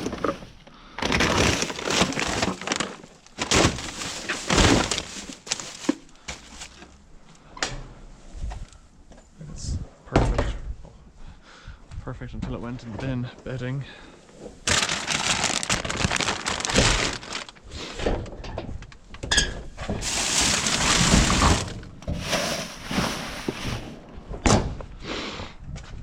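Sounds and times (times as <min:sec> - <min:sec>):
rubbish rustling and clattering: 0:00.0 - 0:07.0, 0:14.5 - 0:18.2, 0:19.7 - 0:24.0.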